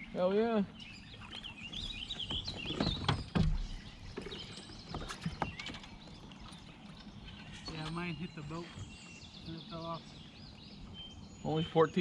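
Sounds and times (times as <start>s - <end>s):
birds chirping: 0.0s - 12.0s
knocks on a kayak: 2.2s - 5.7s.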